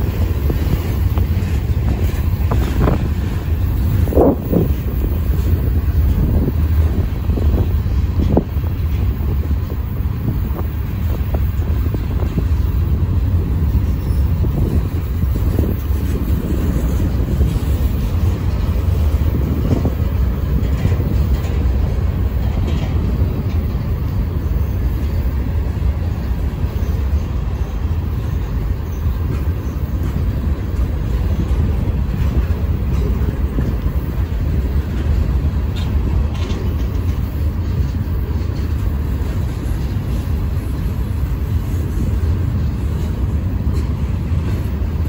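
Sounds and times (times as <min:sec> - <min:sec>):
steel wheels rumbling on rails: 0:00.0 - 0:45.0.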